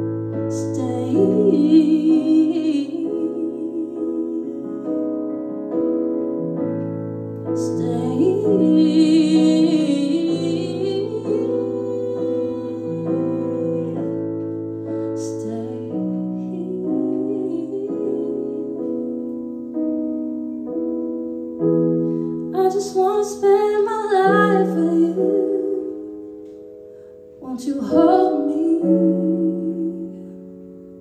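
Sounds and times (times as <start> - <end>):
piano chords: 0.0 - 31.0
woman singing wordless phrases: 0.5 - 5.0, 7.6 - 14.2, 15.2 - 19.2, 22.6 - 26.0, 27.4 - 30.2.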